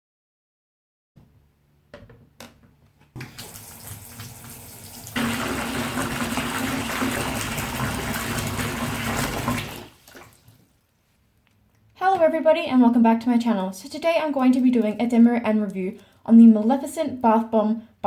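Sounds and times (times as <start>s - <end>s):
small knocks: 1.9s - 3.3s
tap water running into bath: 3.2s - 10.7s.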